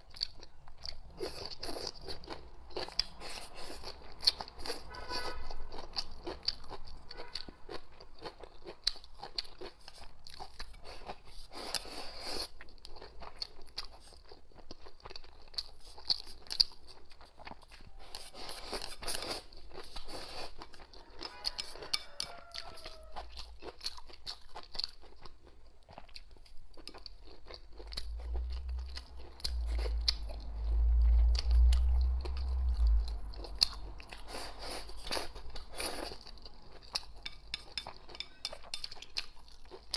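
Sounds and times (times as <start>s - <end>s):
chewing and crunching food: 0.0s - 39.9s
low rumble: 27.8s - 34.3s.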